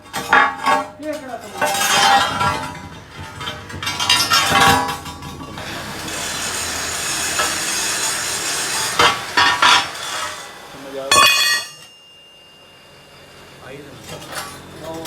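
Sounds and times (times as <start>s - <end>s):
metal striking metal: 11.0s - 12.2s.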